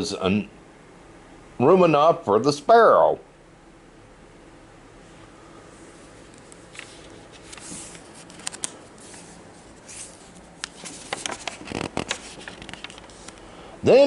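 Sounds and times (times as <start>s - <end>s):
paper rustling: 6.2s - 13.5s
pages turning with clicks and taps: 6.3s - 13.4s.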